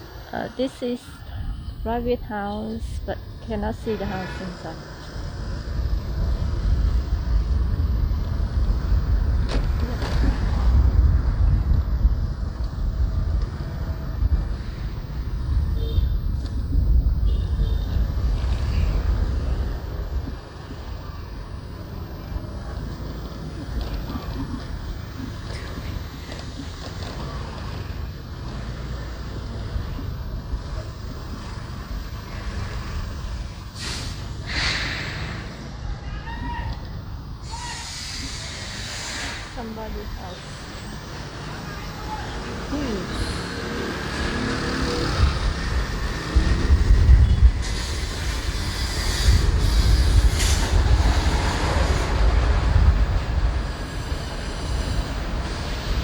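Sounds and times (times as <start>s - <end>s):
motorbike engine and road rumble: 0.0s - 56.0s
traffic noise: 0.0s - 56.0s
wind buffeting microphone: 4.9s - 26.8s, 44.8s - 56.0s
loud hissing bursts: 33.8s - 35.5s, 37.4s - 39.4s, 47.6s - 52.1s.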